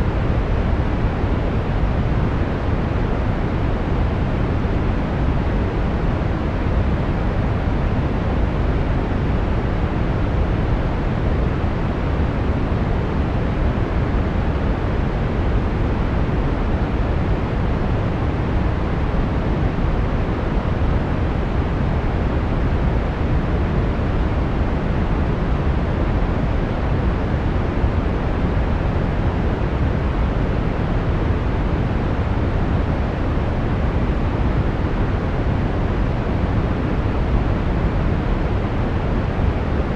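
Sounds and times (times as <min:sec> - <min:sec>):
brown noise rumbling hiss: 0:00.0 - 0:39.9.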